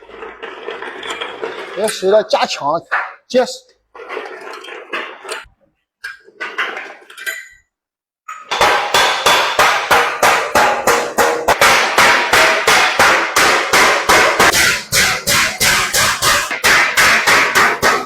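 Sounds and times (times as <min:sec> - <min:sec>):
metal clattering: 0:00.0 - 0:07.7, 0:08.3 - 0:18.0
hammer striking sheet metal: 0:08.3 - 0:18.0.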